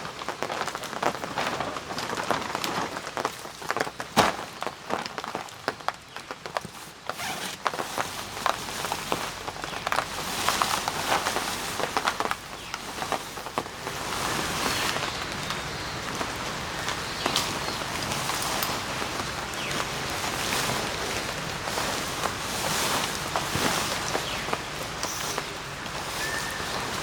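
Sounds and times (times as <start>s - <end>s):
rain falling: 0.0s - 27.0s
raindrops ticking: 7.7s - 27.0s.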